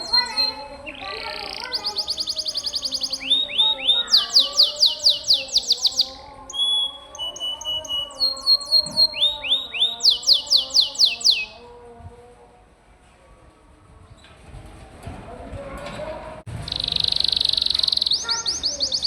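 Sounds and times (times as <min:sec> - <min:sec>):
canary singing trills: 0:00.0 - 0:11.6, 0:16.6 - 0:19.0.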